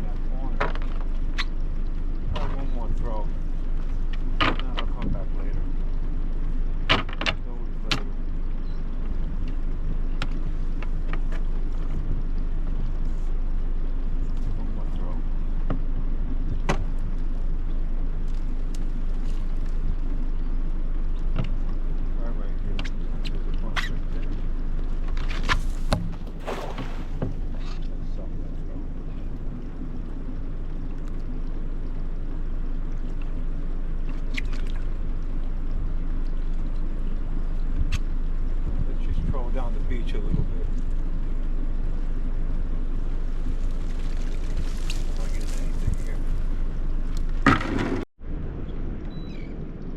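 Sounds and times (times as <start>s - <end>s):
boat motor running: 0.0s - 48.0s
wind rumble on microphone: 0.0s - 49.9s.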